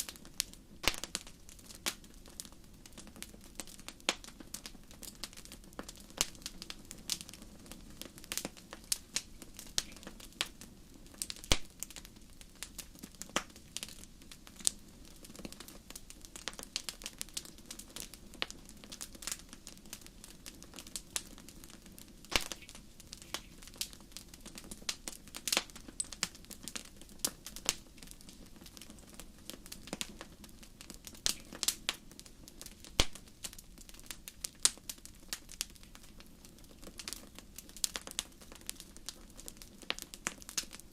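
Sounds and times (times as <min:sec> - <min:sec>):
fire crackling: 0:00.0 - 0:40.9
soft low background noise: 0:00.0 - 0:40.9.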